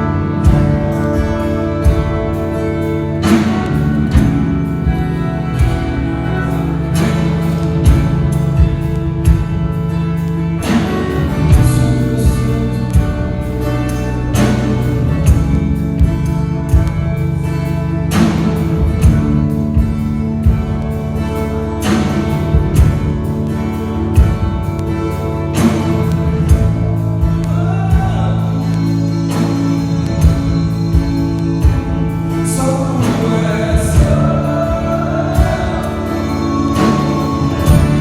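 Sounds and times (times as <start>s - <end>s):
guitar chords: 0.0s - 38.0s
steady drum beat: 0.0s - 38.0s
worship band playing instrumental: 0.0s - 38.0s.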